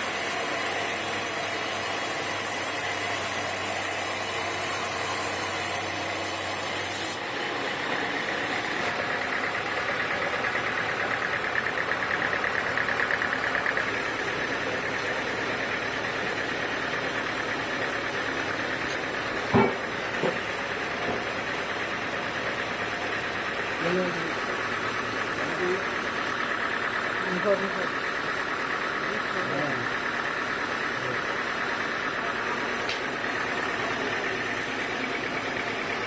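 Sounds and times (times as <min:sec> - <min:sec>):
sawmill machinery running: 0:00.0 - 0:36.0.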